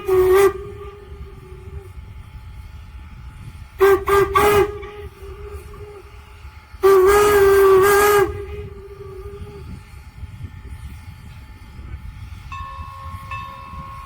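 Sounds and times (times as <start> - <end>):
steam locomotive whistle blasts: 0.0 - 2.0, 3.7 - 10.0
low rumble of train: 0.0 - 14.0.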